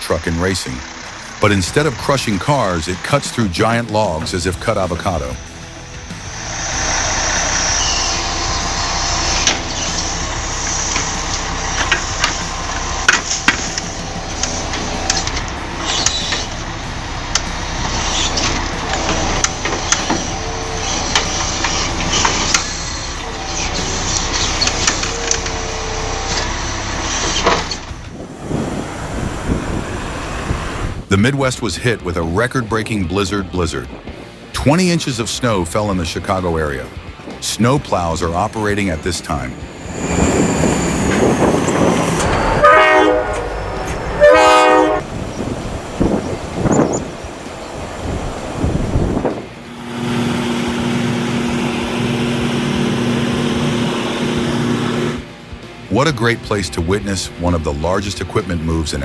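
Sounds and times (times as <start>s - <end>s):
heavy machine running: 0.0s - 31.2s, 35.5s - 59.0s
vehicle rushing rumble: 0.0s - 59.0s
multi-note horn blasts: 0.8s - 28.2s, 39.5s - 55.4s.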